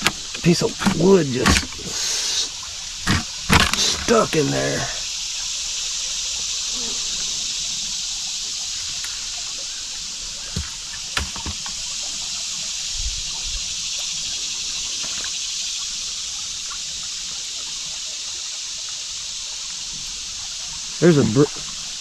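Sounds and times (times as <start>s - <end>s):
creek water trickling over rocks: 0.0s - 22.0s
short knocks: 10.4s - 11.8s.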